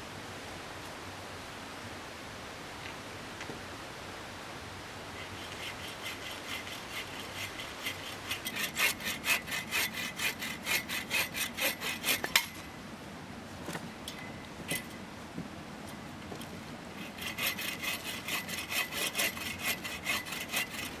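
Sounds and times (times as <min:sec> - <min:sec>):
hand saw cutting wood: 0:05.2 - 0:12.7, 0:17.0 - 0:21.0.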